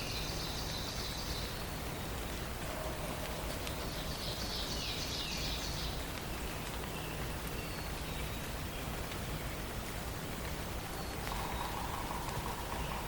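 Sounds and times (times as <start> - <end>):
songbird singing: 0.0 - 13.0
steady background hiss: 0.0 - 13.0.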